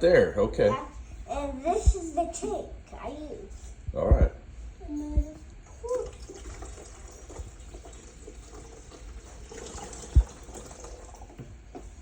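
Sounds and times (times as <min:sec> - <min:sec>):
water trickling into a tank: 0:05.7 - 0:12.0.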